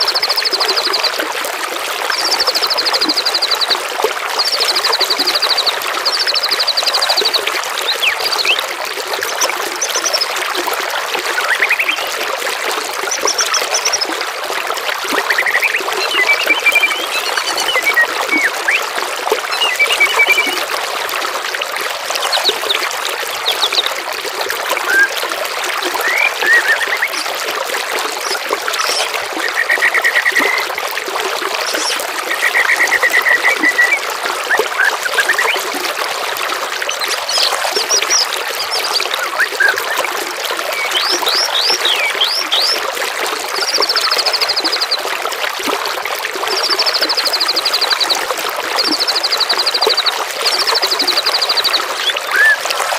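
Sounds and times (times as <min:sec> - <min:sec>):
trickling water: 0:00.0 - 0:52.9
songbirds trilling and chirping: 0:04.4 - 0:10.3, 0:11.4 - 0:12.1, 0:15.3 - 0:18.9, 0:28.1 - 0:30.7, 0:31.5 - 0:35.7, 0:36.8 - 0:40.1, 0:40.8 - 0:42.8.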